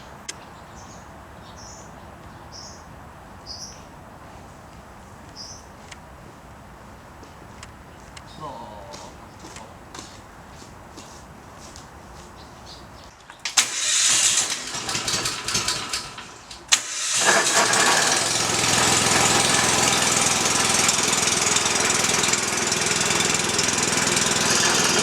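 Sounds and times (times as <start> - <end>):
tractor engine running: 12.6 - 25.0
tractor engine cranking: 13.2 - 25.0.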